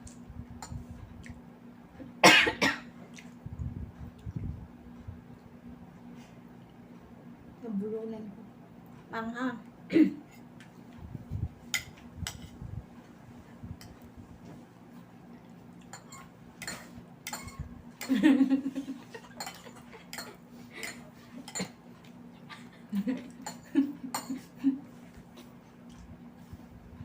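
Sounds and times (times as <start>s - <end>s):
utensils clinking on plate: 15.8s - 18.2s, 19.2s - 22.1s, 23.4s - 24.4s.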